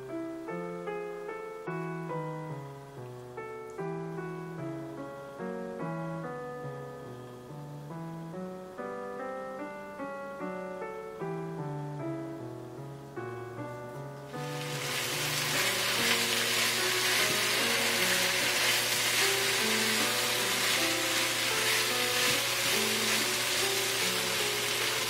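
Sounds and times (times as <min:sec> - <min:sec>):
gentle piano music: 0:00.0 - 0:25.0
food sizzling in a pan: 0:14.3 - 0:25.0.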